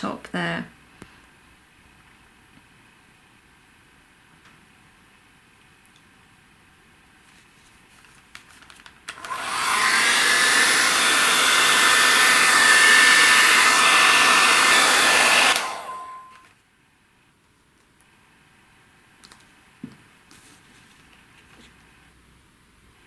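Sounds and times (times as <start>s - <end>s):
air dryer motor whine: 9.1s - 16.5s.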